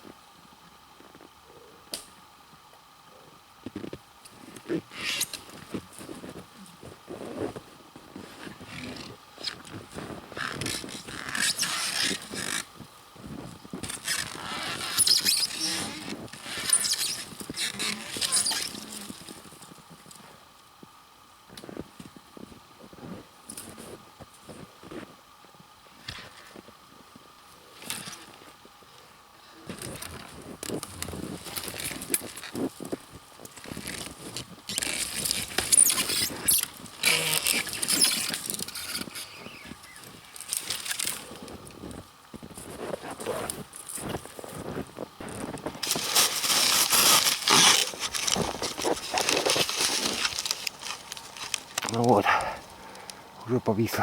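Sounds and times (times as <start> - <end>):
bow saw cutting wood: 34.8 - 39.4, 45.9 - 51.0.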